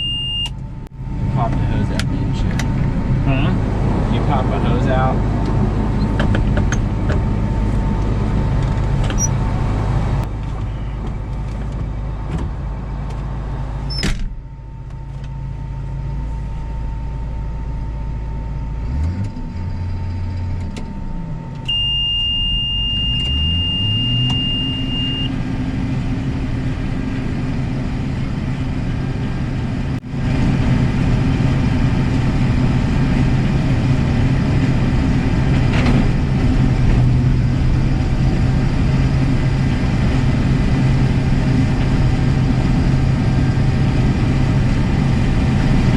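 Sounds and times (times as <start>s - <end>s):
high-pitched electronic beep: 0.0s - 0.5s, 21.7s - 25.3s
farm vehicle engine running: 0.0s - 45.9s.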